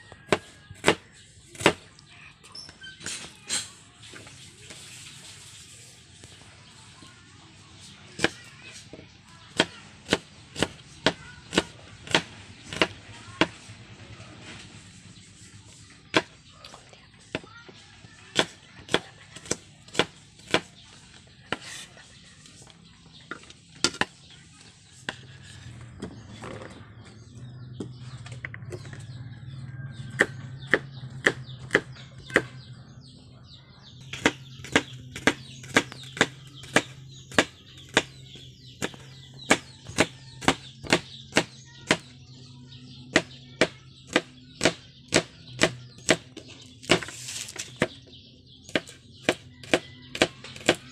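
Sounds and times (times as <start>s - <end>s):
knife chopping on wooden board: 0.3s - 1.8s, 9.6s - 13.6s, 18.3s - 20.7s, 30.1s - 32.5s, 34.1s - 38.2s, 38.8s - 42.1s, 43.1s - 48.0s, 48.7s - 50.8s.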